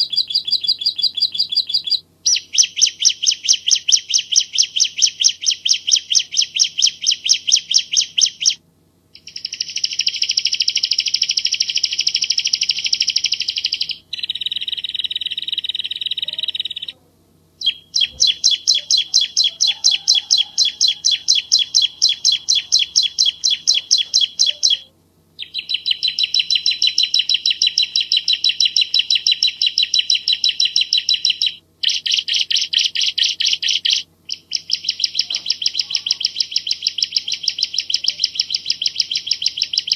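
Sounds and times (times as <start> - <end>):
bird singing trills: 0.0 - 8.6, 9.2 - 17.0, 17.6 - 39.9.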